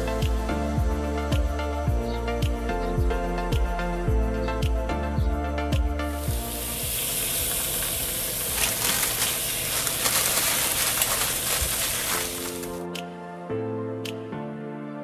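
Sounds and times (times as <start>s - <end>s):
food sizzling in a pan: 6.2s - 12.8s.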